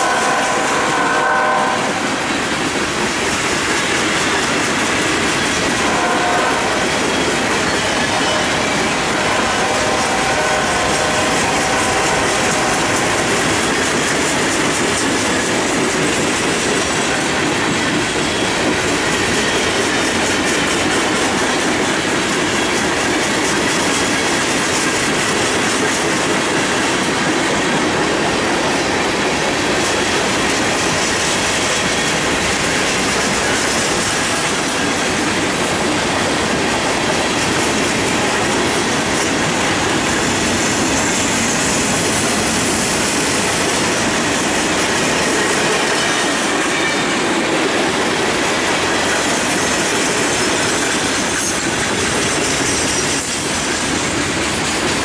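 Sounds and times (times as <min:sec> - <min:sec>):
steel wheels rumbling on rails: 0:00.0 - 0:55.0
wheels clickety-clack over rail joints: 0:00.0 - 0:55.0.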